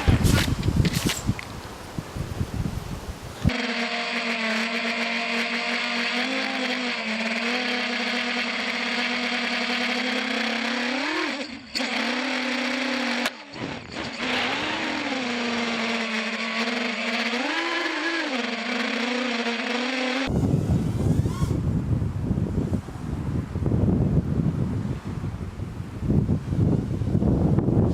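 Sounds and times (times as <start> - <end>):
drone motors whining: 3.5 - 21.7.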